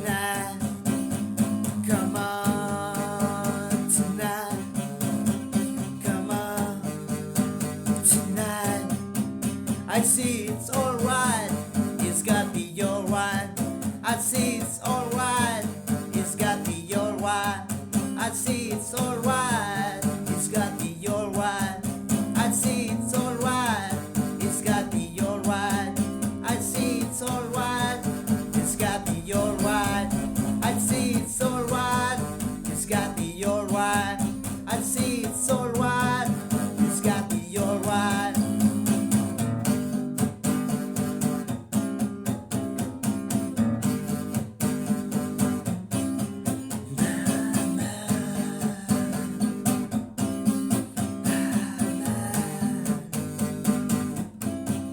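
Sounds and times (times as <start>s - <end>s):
guitar melody bending pitch: 24.6s - 39.4s.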